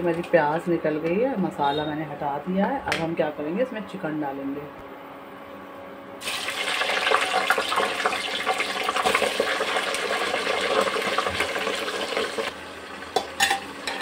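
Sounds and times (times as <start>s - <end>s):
chicken sizzling in hot oil: 6.2s - 14.0s.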